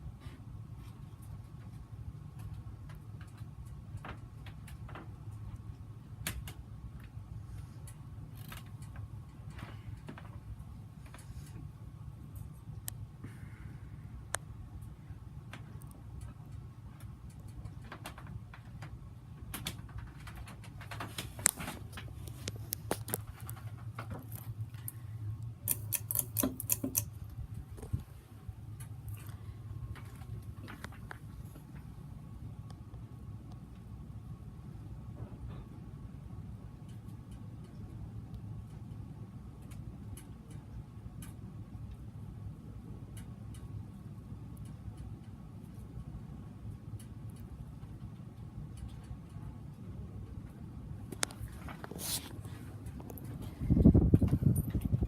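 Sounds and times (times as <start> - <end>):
ceiling fan motor hum: 0.0 - 55.0
light clicks and ticks: 0.8 - 13.1, 14.3 - 28.1, 36.7 - 52.1
clicks and ticks: 15.5 - 28.0.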